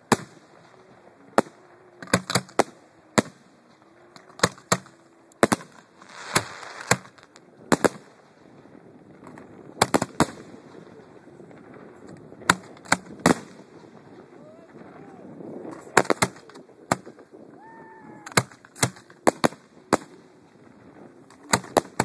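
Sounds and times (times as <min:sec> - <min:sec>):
fireworks bangs: 0:04.3 - 0:08.6, 0:09.8 - 0:17.4, 0:18.0 - 0:22.0
fireworks crackling hiss: 0:05.4 - 0:08.4.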